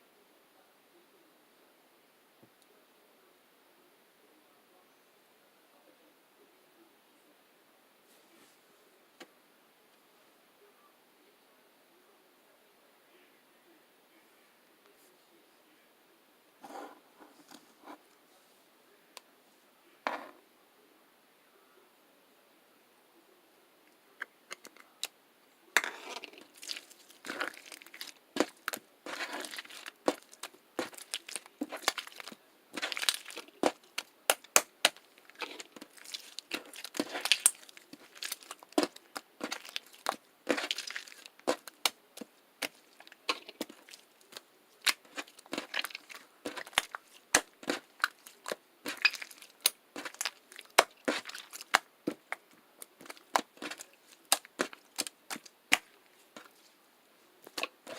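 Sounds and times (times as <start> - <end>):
crinkling and crackling clicks: 25.8 - 56.7.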